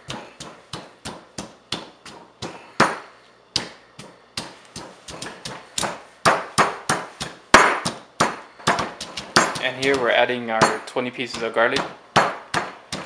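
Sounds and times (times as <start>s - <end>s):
pestle pounding in a mortar: 0.0s - 13.0s.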